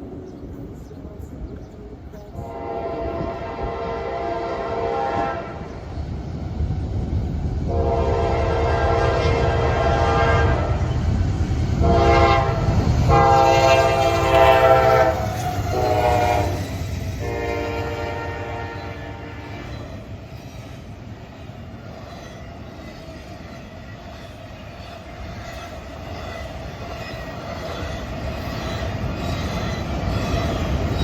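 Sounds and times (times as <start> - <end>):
locomotive rumble: 0.0 - 31.0
locomotive air horn blasts: 2.4 - 5.7, 7.7 - 10.8, 11.8 - 19.9.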